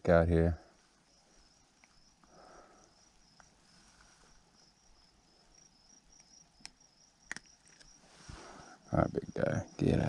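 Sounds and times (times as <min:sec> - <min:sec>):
crickets chirping: 0:00.0 - 0:10.0
sharp clicks: 0:06.2 - 0:07.9.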